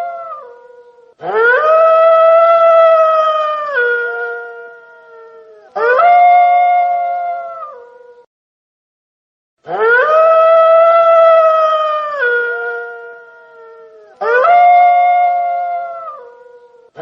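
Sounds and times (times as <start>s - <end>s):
wolf howling: 0.0s - 8.2s, 9.7s - 17.0s.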